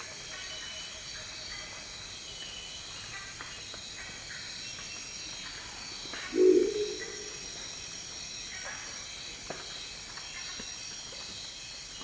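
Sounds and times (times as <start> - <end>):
high-pitched insect chorus: 5.7 - 8.5
owl giving deep croaking call: 6.3 - 7.5.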